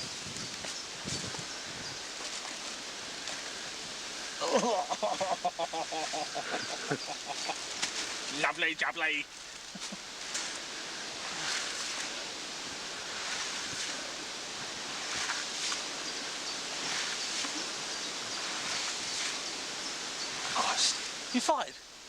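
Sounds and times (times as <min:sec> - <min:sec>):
soft rustles: 0:00.0 - 0:04.2, 0:09.3 - 0:19.6
outdoor background hiss: 0:00.0 - 0:22.0.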